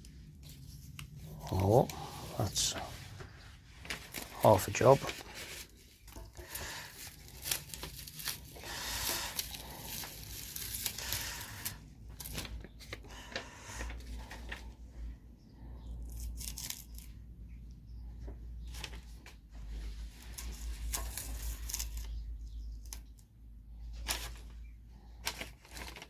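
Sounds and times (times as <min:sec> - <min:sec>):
masking tape ripping off: 0:06.6 - 0:11.8.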